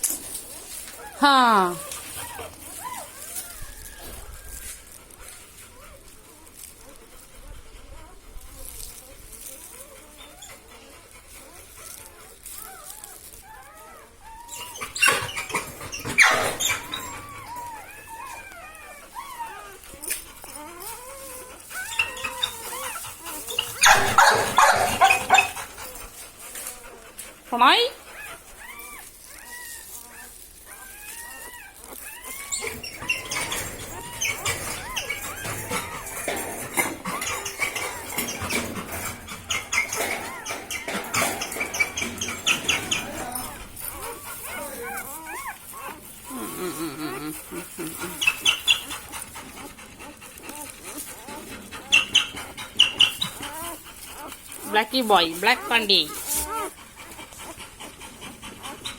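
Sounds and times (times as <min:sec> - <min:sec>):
puppies whimpering and squeaking: 0:00.0 - 0:58.9
rustling noise: 0:00.0 - 0:58.9.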